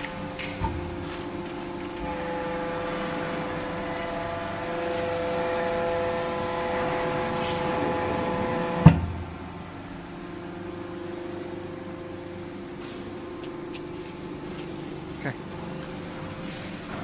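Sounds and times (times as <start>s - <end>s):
hydraulic power unit whining: 0.0s - 17.0s.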